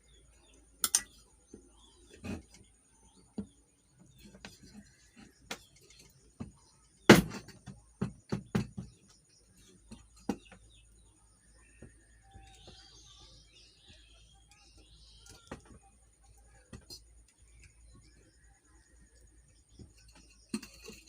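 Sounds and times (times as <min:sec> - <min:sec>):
metal fan parts clicking: 0:00.8 - 0:01.2.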